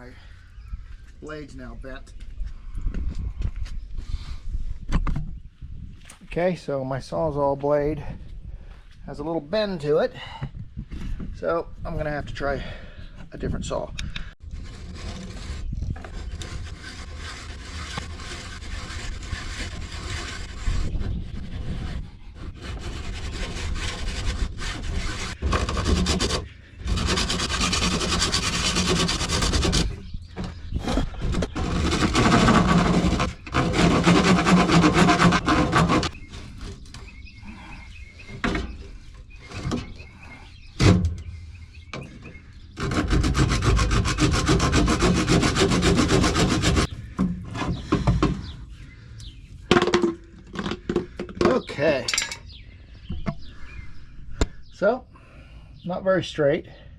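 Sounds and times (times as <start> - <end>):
hand saw cutting plastic pipe: 14.5 - 36.8, 42.8 - 48.5.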